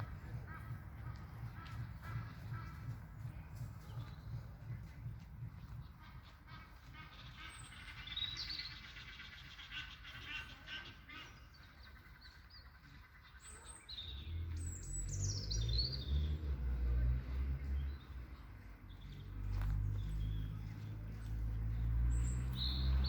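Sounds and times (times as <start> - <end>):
low rumble: 0.0 - 6.4
songbirds singing: 0.0 - 23.0.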